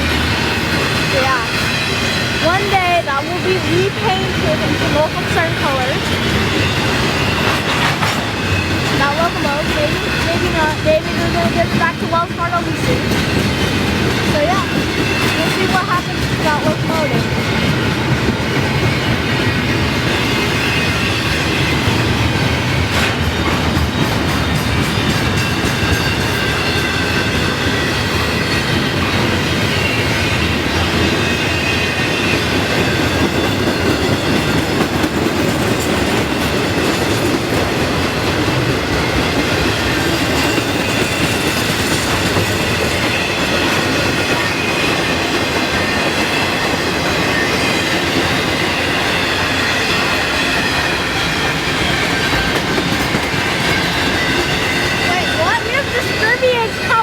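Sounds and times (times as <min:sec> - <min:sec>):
wheels clicking over rail joints: 0:00.0 - 0:31.3
high wheel squeal: 0:00.0 - 0:37.2, 0:38.6 - 0:57.0
train wheels rumbling on rails: 0:00.0 - 0:57.0.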